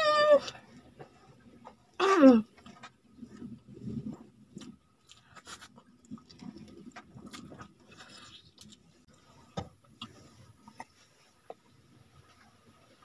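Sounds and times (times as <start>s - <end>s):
person chewing with wet smacks: 2.5s - 11.7s.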